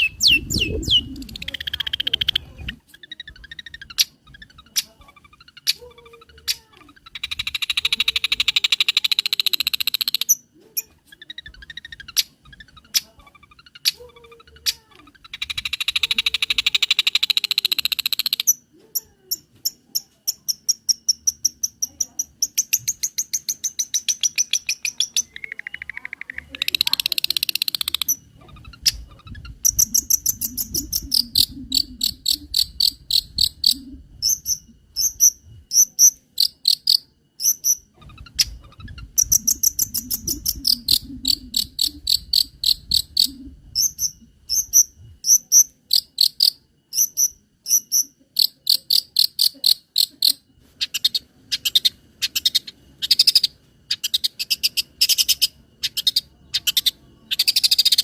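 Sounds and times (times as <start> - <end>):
bird singing sharp high chirps: 0.0 - 5.8, 20.5 - 46.1.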